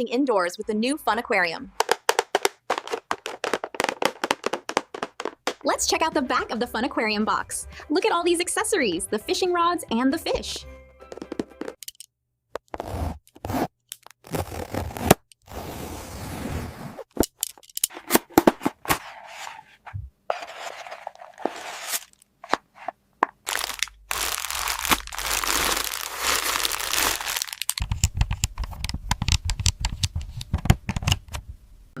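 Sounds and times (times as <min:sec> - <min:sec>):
packaging crinkling and tearing: 0:01.9 - 0:05.6, 0:23.4 - 0:28.8
sharp clicks and knocks: 0:27.6 - 0:31.4.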